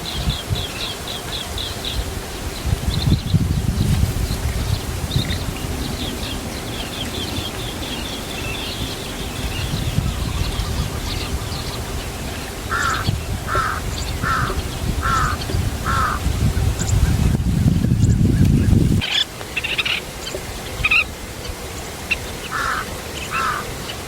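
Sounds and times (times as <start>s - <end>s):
birds twittering: 0.0s - 24.0s
low rumble of wind: 0.0s - 24.0s
harsh bird call: 12.7s - 16.2s, 22.5s - 23.8s.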